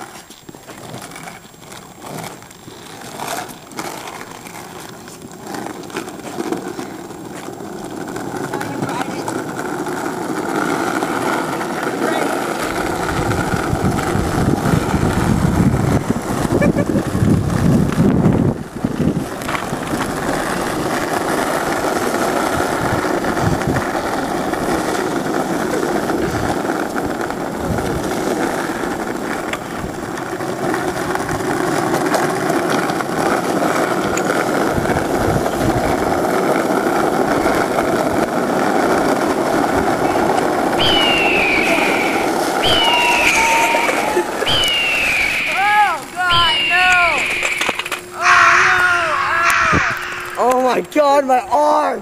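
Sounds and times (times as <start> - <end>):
high falling squeals: 40.8 - 50.8.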